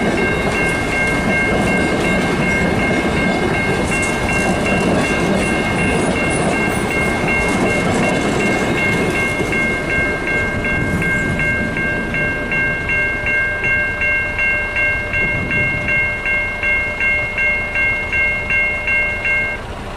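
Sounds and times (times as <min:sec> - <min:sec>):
level-crossing warning bells ringing: 0:00.0 - 0:19.9
train rumbling on rails: 0:00.0 - 0:19.9.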